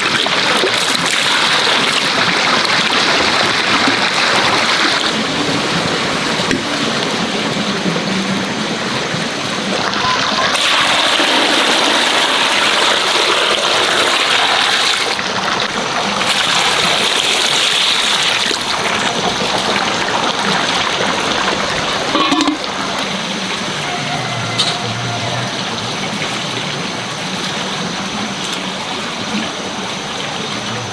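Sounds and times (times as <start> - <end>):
water rushing: 0.0 - 30.9.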